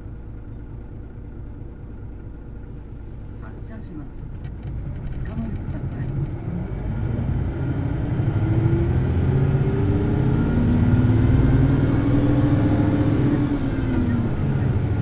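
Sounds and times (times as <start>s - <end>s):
bus diesel engine revving: 5.6s - 15.0s.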